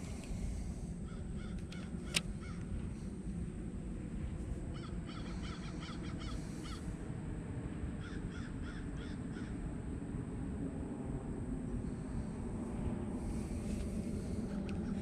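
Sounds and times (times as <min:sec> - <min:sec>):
steady low rumble: 0:00.0 - 0:15.0
bird calling: 0:01.0 - 0:02.7, 0:04.7 - 0:06.9.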